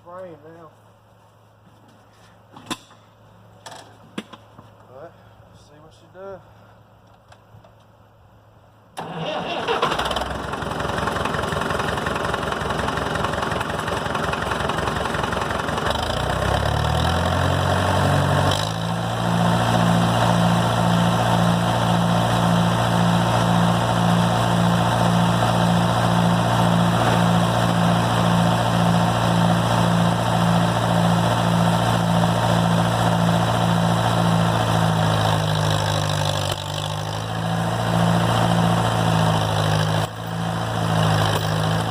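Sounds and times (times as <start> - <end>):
tractor engine running hard: 9.0 - 41.9.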